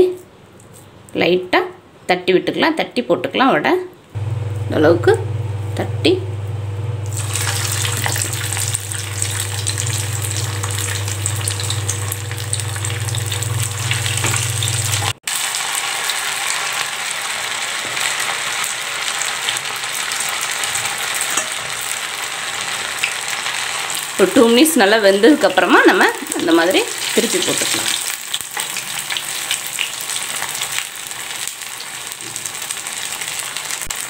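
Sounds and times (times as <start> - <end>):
low hum: 4.2 - 15.2
food deep-frying in oil: 4.2 - 34.0.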